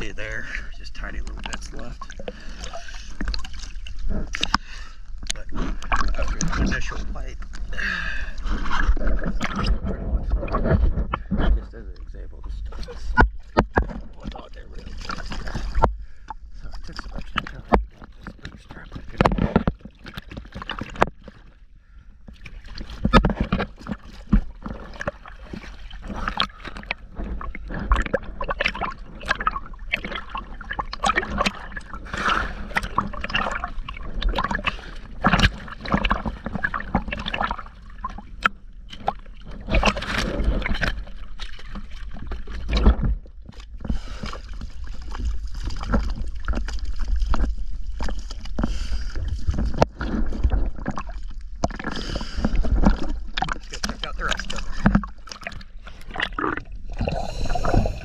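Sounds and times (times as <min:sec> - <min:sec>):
underwater bubbles crackling and gurgling: 0:00.0 - 0:58.0.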